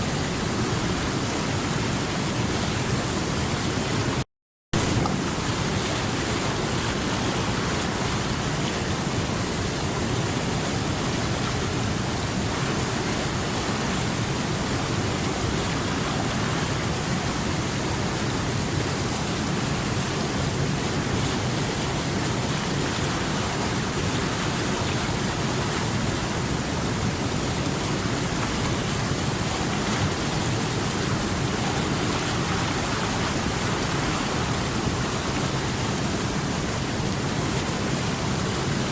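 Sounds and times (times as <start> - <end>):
water rushing over rocks: 0.0 - 4.2, 4.8 - 38.9.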